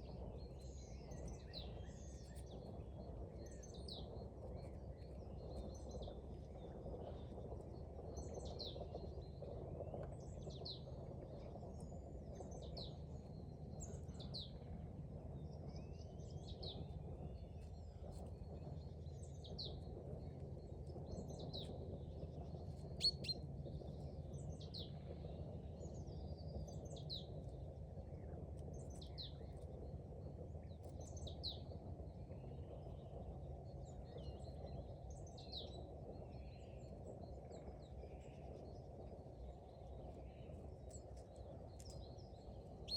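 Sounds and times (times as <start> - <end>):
steady low background noise: 0.0 - 42.9
songbirds calling: 22.7 - 23.4, 39.8 - 42.9.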